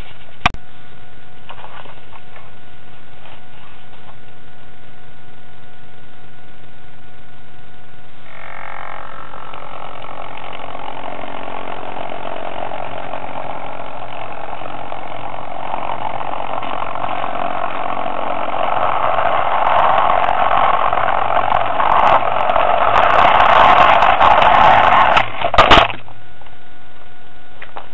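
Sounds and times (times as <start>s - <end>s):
model train running on track: 8.3s - 25.2s.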